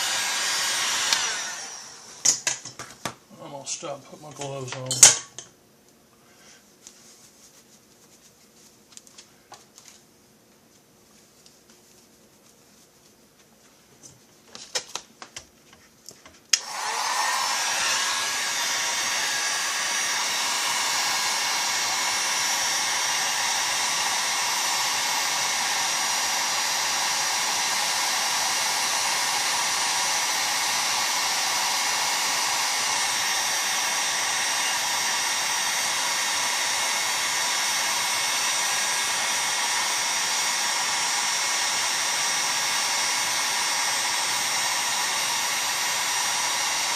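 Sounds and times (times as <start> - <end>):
heat gun fan rushing: 0.0 - 2.6, 16.5 - 46.9.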